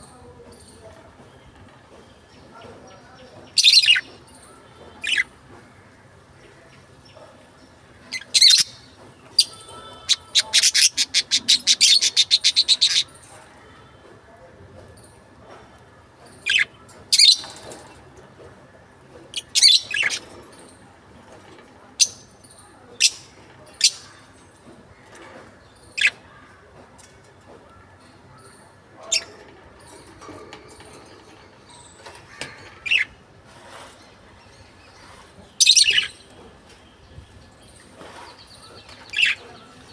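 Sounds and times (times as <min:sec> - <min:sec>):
parrots chirping: 0:08.1 - 0:13.2, 0:19.3 - 0:20.3, 0:29.0 - 0:30.1, 0:31.7 - 0:33.2, 0:35.6 - 0:36.3, 0:39.0 - 0:39.5.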